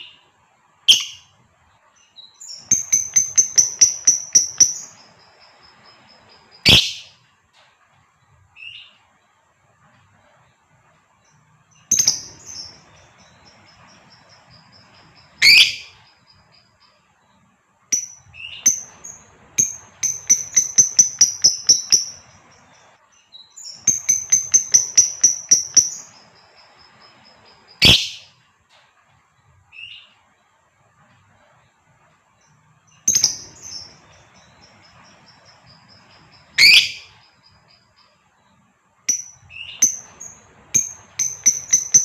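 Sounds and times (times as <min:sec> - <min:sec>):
lovebird rapid chattering: 0:00.9 - 0:01.3, 0:02.4 - 0:07.1, 0:11.8 - 0:16.1, 0:17.9 - 0:22.9, 0:23.6 - 0:28.2, 0:33.0 - 0:37.2, 0:39.1 - 0:42.0
lovebird shrill chirps: 0:00.9 - 0:01.3, 0:02.2 - 0:07.2, 0:11.9 - 0:16.2, 0:17.9 - 0:22.9, 0:23.6 - 0:28.3, 0:33.0 - 0:37.3, 0:39.1 - 0:42.0.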